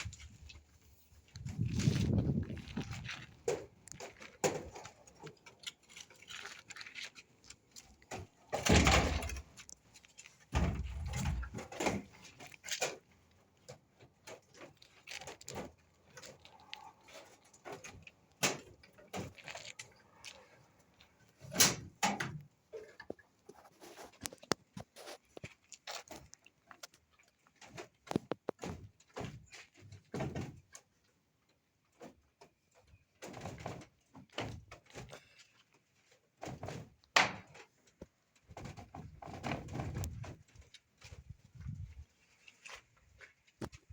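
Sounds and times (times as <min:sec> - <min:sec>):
knocks and thuds of tools: 0:08.6 - 0:09.4.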